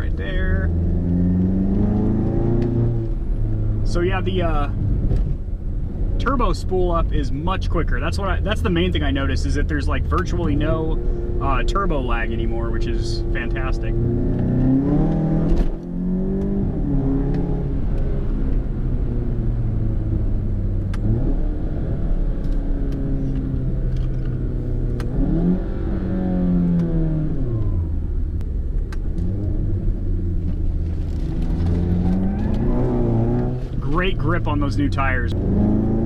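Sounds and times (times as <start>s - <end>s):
car engine accelerating through gears: 0.0s - 6.4s, 8.0s - 36.0s.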